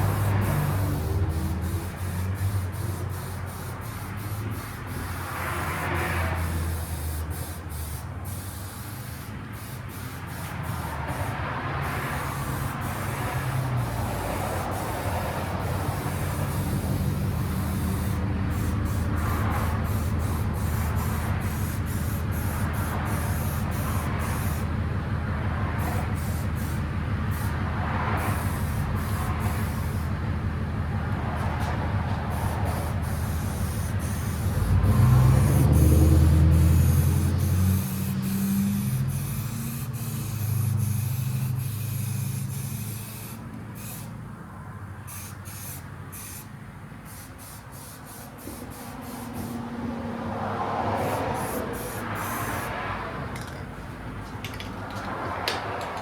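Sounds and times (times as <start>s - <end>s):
spray gun hissing: 0.0s - 24.7s, 32.3s - 44.1s, 45.1s - 49.7s, 51.0s - 52.8s.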